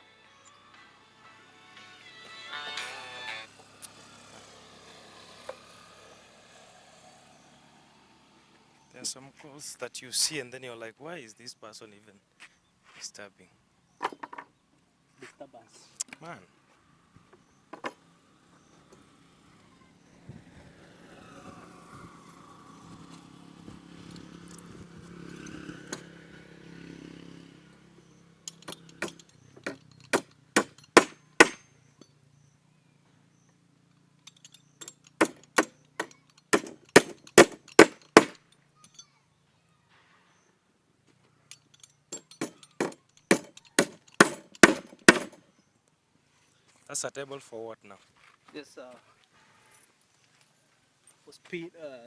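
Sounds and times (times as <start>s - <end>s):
hammer striking wood: 28.7s - 31.6s, 35.2s - 38.4s, 42.2s - 45.4s.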